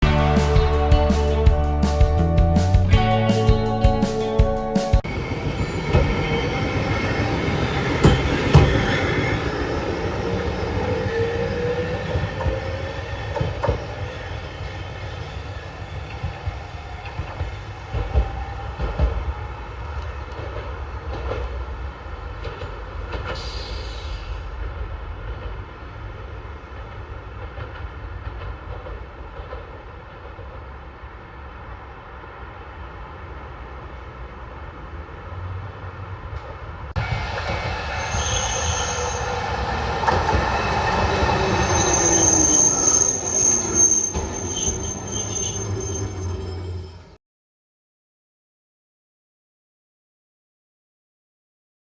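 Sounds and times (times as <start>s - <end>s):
streetcar motor whine: 0.0s - 19.6s, 37.0s - 47.2s
high wheel squeal: 5.0s - 18.7s, 37.0s - 47.2s
wheels knocking on rail joints: 7.2s - 9.7s, 37.0s - 47.0s.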